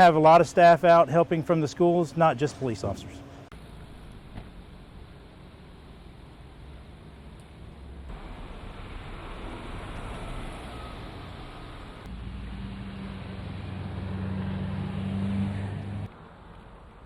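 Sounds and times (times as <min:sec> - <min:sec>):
passing vehicles hissing: 0:02.4 - 0:17.0
vehicle engine hum: 0:03.0 - 0:17.0.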